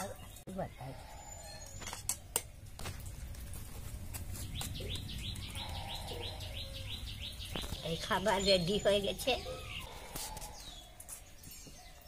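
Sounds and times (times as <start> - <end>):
bird chirping rapidly: 4.4 - 11.8.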